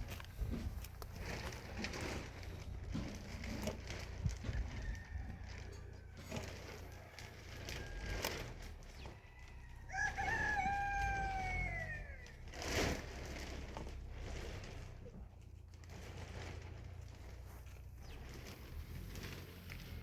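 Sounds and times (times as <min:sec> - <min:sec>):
rooster crowing: 0:04.4 - 0:12.5.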